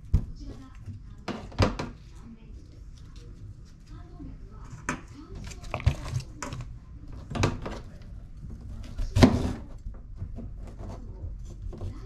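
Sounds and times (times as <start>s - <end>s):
kitchen items knocking and clicking: 4.7s - 7.9s.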